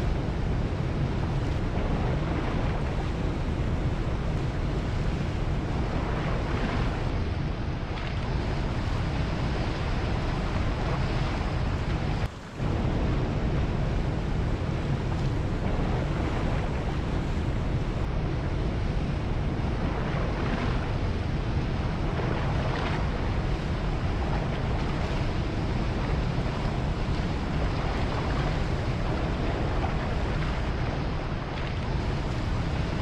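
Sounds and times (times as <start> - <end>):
ocean surf washing: 0.0 - 33.0
wind rumbling on microphone: 0.0 - 33.0.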